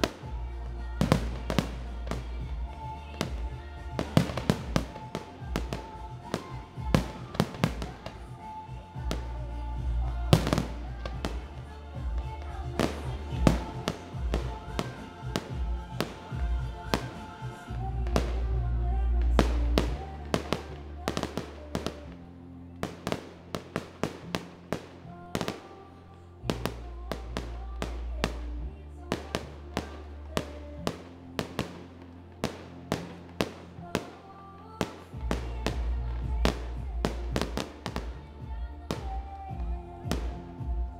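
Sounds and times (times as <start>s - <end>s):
fireworks bursting: 0.0s - 22.2s, 26.5s - 40.9s
music with heavy bass: 0.0s - 25.6s, 34.9s - 40.9s.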